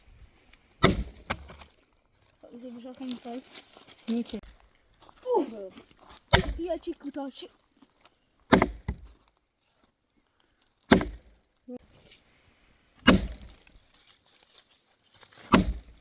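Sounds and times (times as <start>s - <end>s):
wood cracking: 0.3s - 11.7s, 13.0s - 16.0s
axe chopping firewood: 0.8s - 1.8s, 6.2s - 6.8s, 8.5s - 9.3s, 10.8s - 11.5s, 13.0s - 13.7s, 15.3s - 16.0s.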